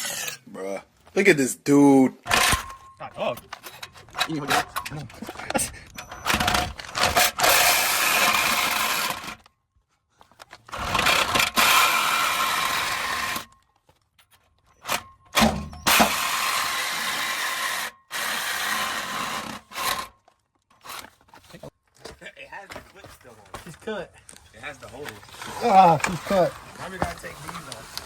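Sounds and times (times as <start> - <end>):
power tool cutting steel pipe: 0.0 - 0.4, 2.3 - 3.0, 3.6 - 9.4, 10.7 - 13.5, 14.8 - 20.1.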